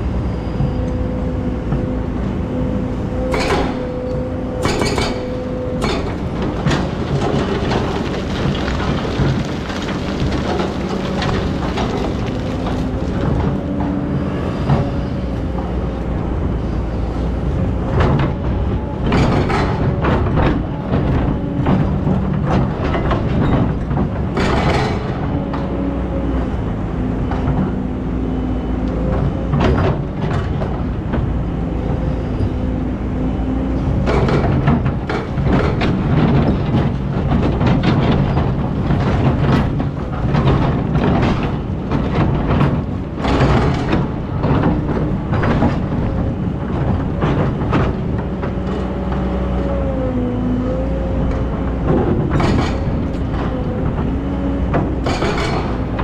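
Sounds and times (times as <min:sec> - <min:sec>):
excavator diesel engine: 0:00.0 - 0:56.0
bucket clanking and scraping stones: 0:05.9 - 0:13.6.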